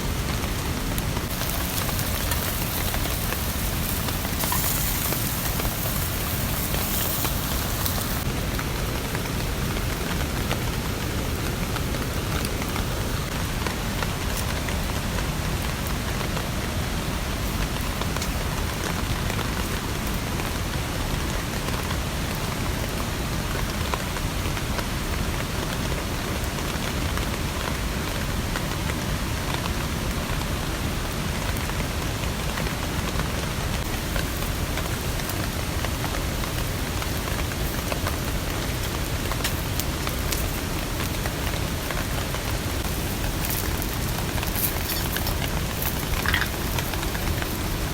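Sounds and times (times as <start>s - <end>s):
steady rain: 0.0s - 47.9s
high hiss: 1.2s - 8.3s.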